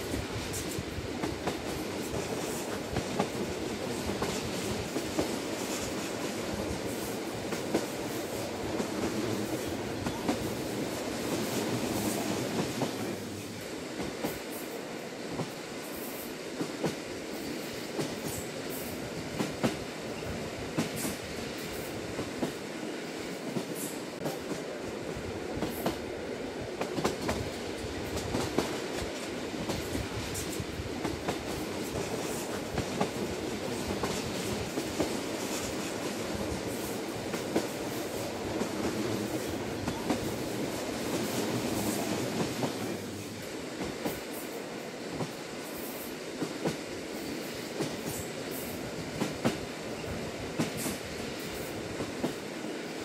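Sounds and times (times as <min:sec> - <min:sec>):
train rolling rumble: 0:00.0 - 0:53.0.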